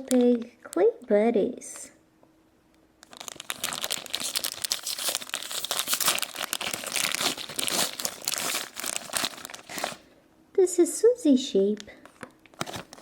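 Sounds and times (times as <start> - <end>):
plastic wrapper crinkling and tearing: 0.0 - 0.6, 3.0 - 10.1, 11.9 - 13.0.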